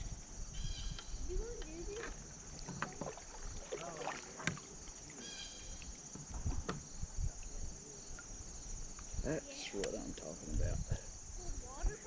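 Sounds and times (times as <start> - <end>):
insects droning: 0.0 - 12.0
knocks and thumps in kayak: 1.2 - 5.1, 6.0 - 7.3.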